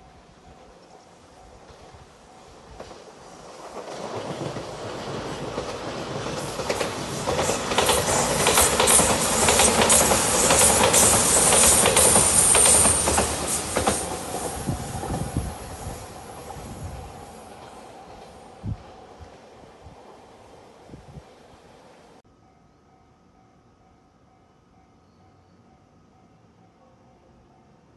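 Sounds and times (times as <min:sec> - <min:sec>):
train rumbling past: 0:00.0 - 0:27.9
high hiss: 0:06.4 - 0:18.7.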